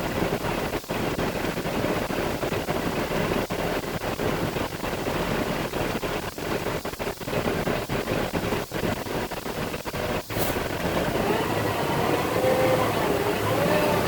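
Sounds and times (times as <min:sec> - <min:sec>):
diesel truck engine: 0:09.0 - 0:14.0
road noise: 0:09.6 - 0:14.0.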